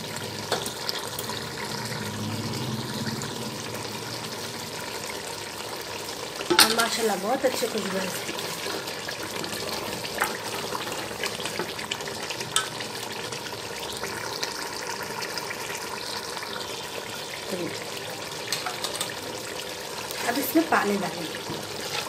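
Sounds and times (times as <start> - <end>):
stew sizzling in metal pot: 0.0 - 22.0
spoon clinking against pot: 6.5 - 7.0.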